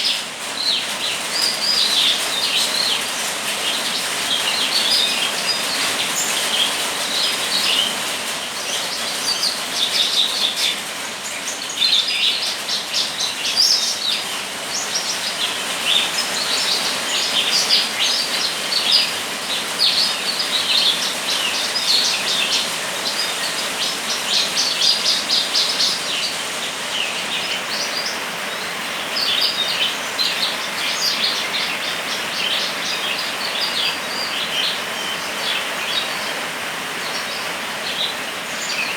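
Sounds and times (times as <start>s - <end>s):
rain hiss: 0.0s - 38.9s
songbird singing: 0.0s - 38.9s.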